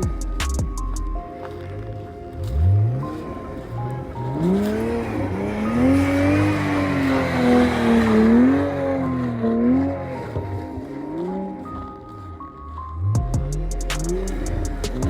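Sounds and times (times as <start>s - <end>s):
car engine revving: 2.3s - 11.6s, 13.0s - 15.0s.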